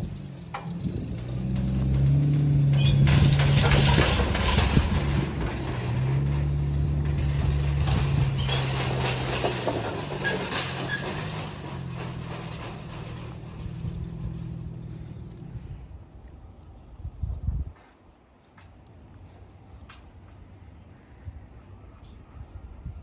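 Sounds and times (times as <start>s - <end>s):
vehicle engine changing speed: 0.0s - 16.3s.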